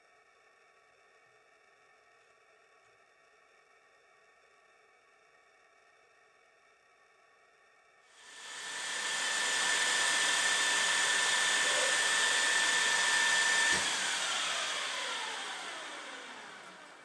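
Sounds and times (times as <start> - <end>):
spindle motor whining: 8.3 - 17.0.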